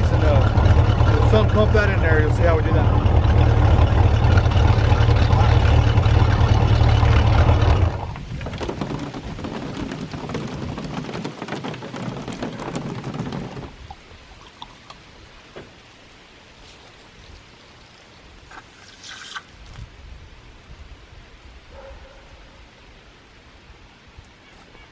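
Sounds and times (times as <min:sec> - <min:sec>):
boat engine running: 0:00.0 - 0:14.0
water splashing and trickling: 0:00.0 - 0:19.9.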